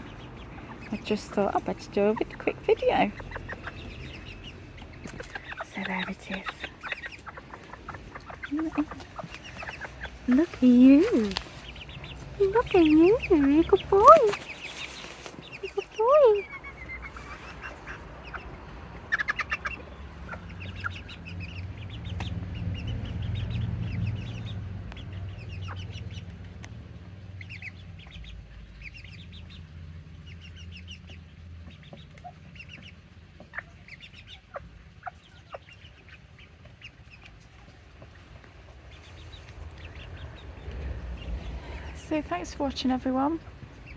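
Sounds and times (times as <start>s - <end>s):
chickens clucking: 0.0s - 43.9s
low rumble: 38.5s - 43.9s.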